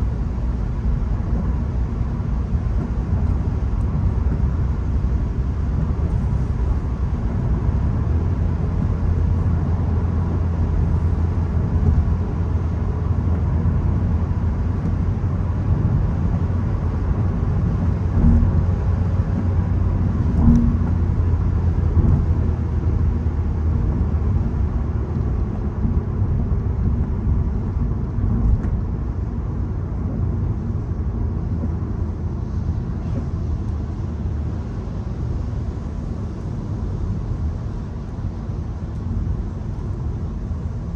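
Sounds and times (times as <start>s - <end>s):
car engine drone: 0.0s - 40.9s
tyre and road noise: 0.0s - 40.9s
brief knocks: 18.2s - 18.6s, 20.4s - 21.0s.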